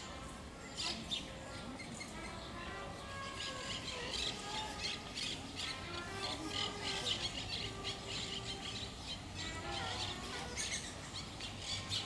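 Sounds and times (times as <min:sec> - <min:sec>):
birds squawking chirps: 0:03.2 - 0:12.0.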